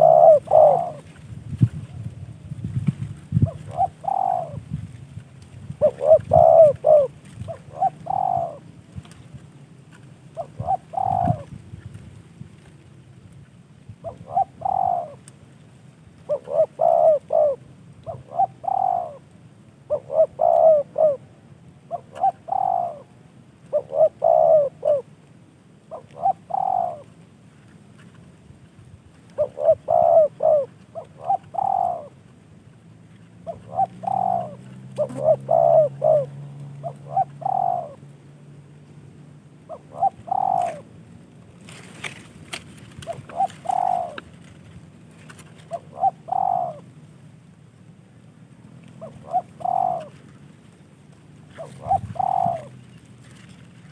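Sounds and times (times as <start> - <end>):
dove cooing: 0.0 - 2.0, 3.2 - 4.8, 5.7 - 9.2, 10.3 - 11.7, 13.9 - 15.3, 16.2 - 25.2, 25.8 - 27.2, 29.3 - 32.2, 33.4 - 38.2, 39.6 - 41.0, 41.7 - 47.1, 48.8 - 50.8, 51.4 - 53.6.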